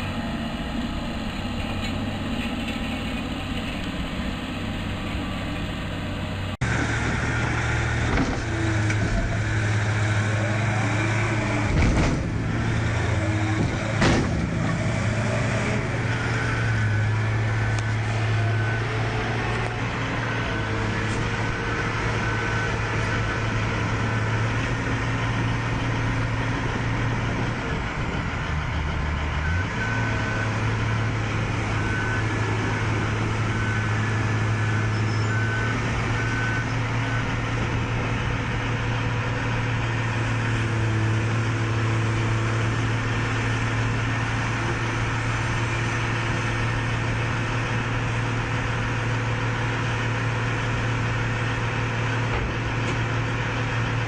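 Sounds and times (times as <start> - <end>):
heavy machine engine running: 0.0 - 54.0
reversing alarm beeping: 29.4 - 37.7.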